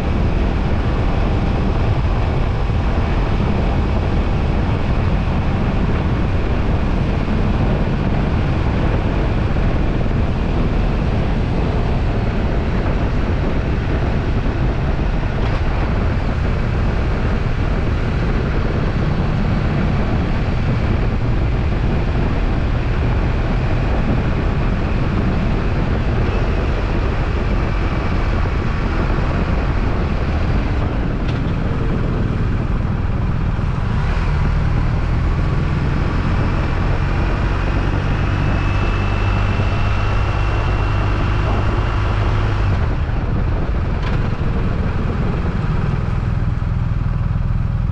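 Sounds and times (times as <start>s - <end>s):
motorcycle engine cruising: 0.0s - 47.9s
wind rush on microphone: 0.0s - 47.9s.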